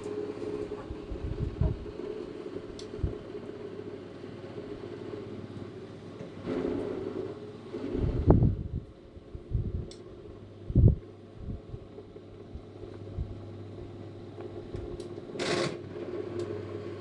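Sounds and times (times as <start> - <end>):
small fan motor humming: 0.0 - 17.0.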